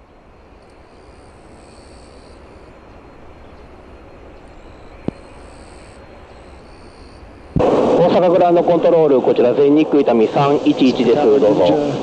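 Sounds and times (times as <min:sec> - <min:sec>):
jet engine rushing: 0:07.4 - 0:12.0.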